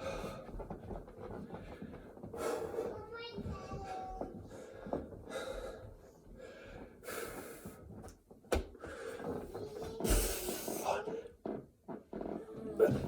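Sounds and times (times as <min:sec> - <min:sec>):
person breathing heavily: 0:00.0 - 0:00.6, 0:10.0 - 0:11.2.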